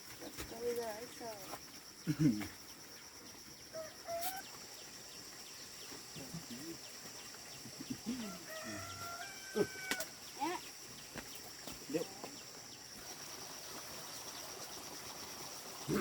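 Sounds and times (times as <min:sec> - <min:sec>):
high insect drone: 0:00.0 - 0:16.0
rooster crowing: 0:03.7 - 0:04.5, 0:08.1 - 0:10.1.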